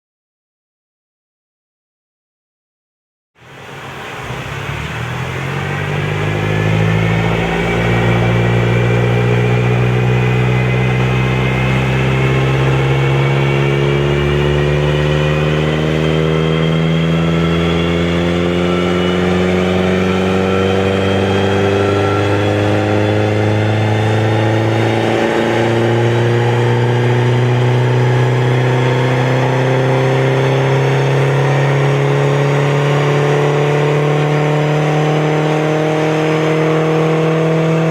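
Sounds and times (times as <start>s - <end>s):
car engine revving under load: 3.4s - 37.9s.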